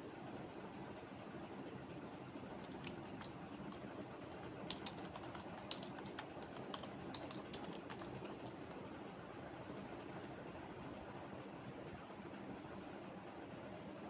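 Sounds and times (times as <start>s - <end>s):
typing on computer keyboard: 2.6s - 9.0s.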